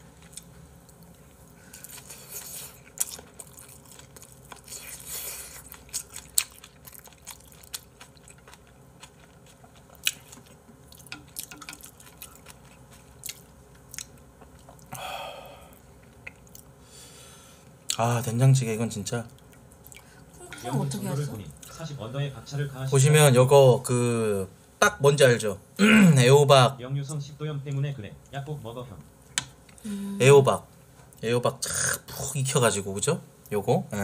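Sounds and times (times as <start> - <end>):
man chewing food: 0.0 - 18.0, 19.3 - 20.7.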